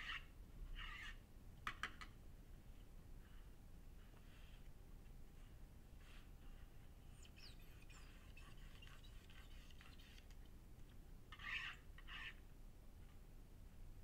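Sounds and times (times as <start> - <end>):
bird chirps and twitters: 7.2 - 10.2.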